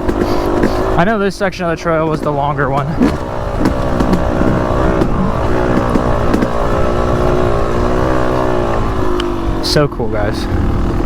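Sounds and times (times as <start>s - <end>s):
sharp knocks: 0.0s - 1.1s, 2.1s - 9.2s
dirt bike engine running: 0.0s - 11.0s.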